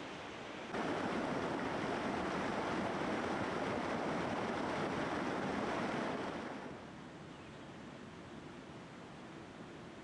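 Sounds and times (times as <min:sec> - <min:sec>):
river water rushing: 0:00.0 - 0:07.2.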